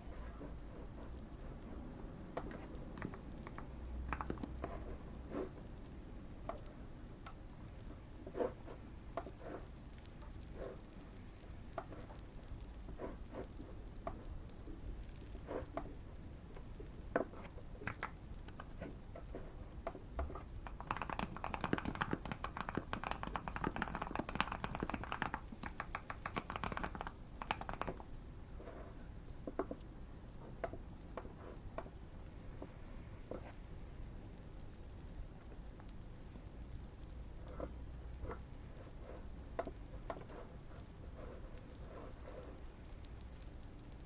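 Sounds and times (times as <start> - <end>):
fireplace crackling: 0.0 - 20.9, 25.2 - 44.0
mechanical keyboard typing: 2.4 - 4.8, 19.9 - 28.1.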